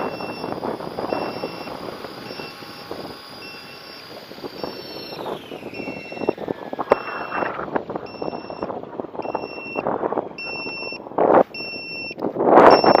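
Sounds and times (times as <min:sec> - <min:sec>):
two-tone electronic beeps: 0:00.0 - 0:13.0
wind buffeting microphone: 0:00.0 - 0:13.0.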